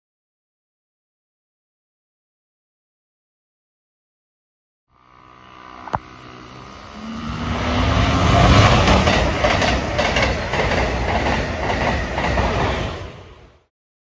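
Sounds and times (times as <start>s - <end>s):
single sharp click: 5.9s - 6.1s
train wheel-on-rail rush: 6.1s - 13.7s
wheels clicking over rail joints: 8.3s - 12.8s.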